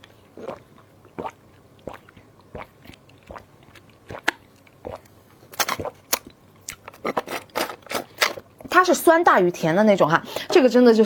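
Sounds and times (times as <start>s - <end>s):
person swallowing: 0.0s - 6.0s
mouth smacks and clicks: 0.0s - 7.2s.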